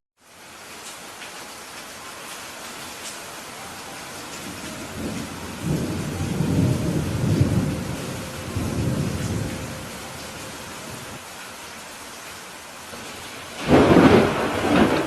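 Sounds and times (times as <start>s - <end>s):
steady rain: 0.2s - 15.0s
thunder rolling: 4.4s - 11.2s, 13.0s - 15.0s.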